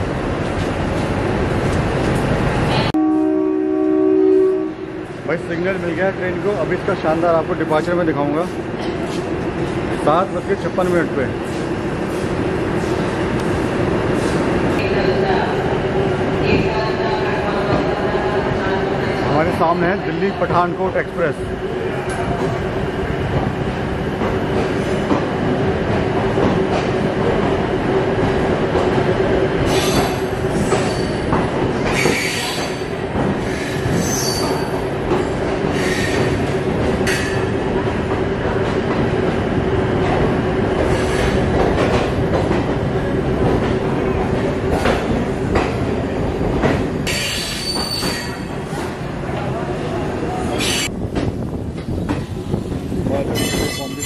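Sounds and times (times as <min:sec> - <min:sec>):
train rumble and hum: 0:00.0 - 0:54.0
train wheels squealing on rails: 0:29.6 - 0:36.5, 0:47.0 - 0:48.8, 0:50.5 - 0:50.9, 0:53.3 - 0:54.0.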